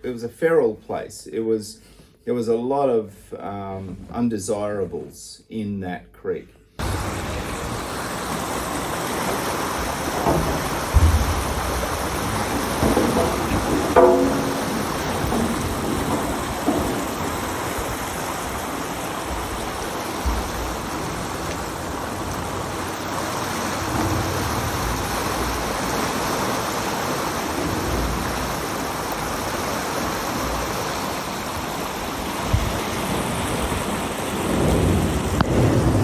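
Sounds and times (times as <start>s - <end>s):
steady rushing noise: 6.8s - 29.2s
low rumbles: 6.8s - 30.7s.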